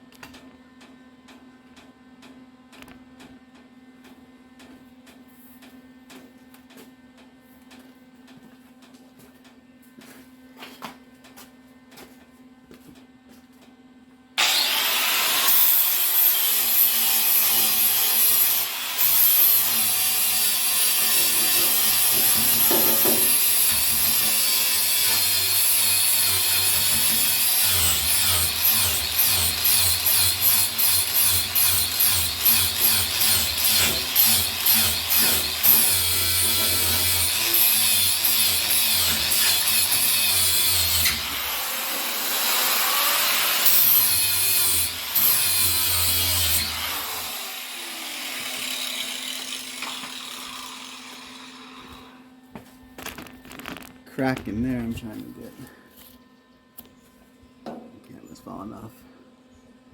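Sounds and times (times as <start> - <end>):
power tool running: 14.4 - 52.2.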